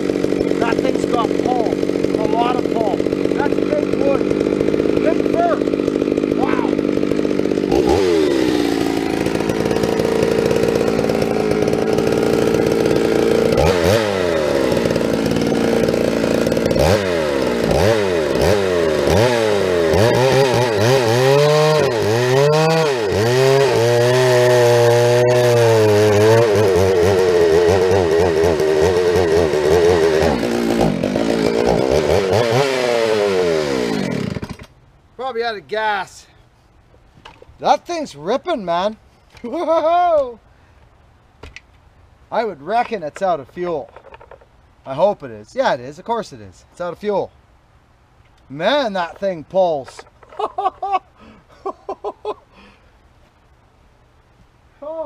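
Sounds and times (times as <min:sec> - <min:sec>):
chainsaw cutting wood: 0:00.0 - 0:34.8.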